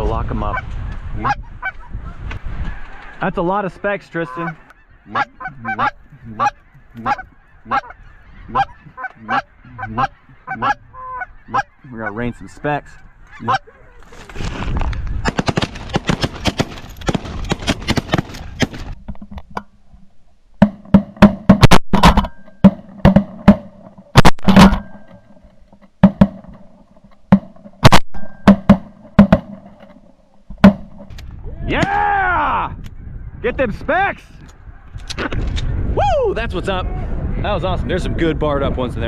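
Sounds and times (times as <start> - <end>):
dense crackling noise: 14.0 - 32.0.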